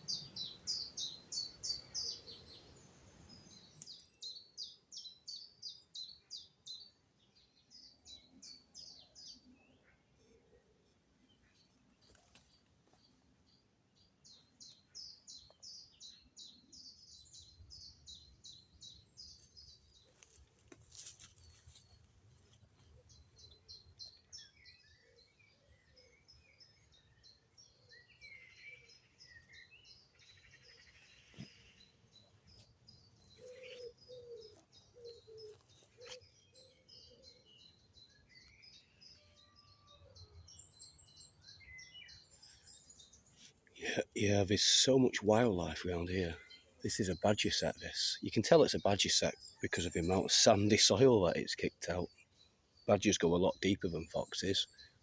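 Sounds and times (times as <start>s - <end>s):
lower bird calls: 0.0s - 7.0s, 14.2s - 55.0s
high bird chirps: 27.9s - 55.0s.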